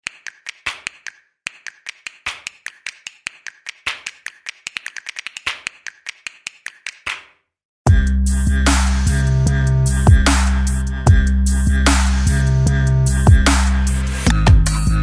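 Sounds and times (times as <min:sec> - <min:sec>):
fast sharp clicks: 0:00.0 - 0:07.3.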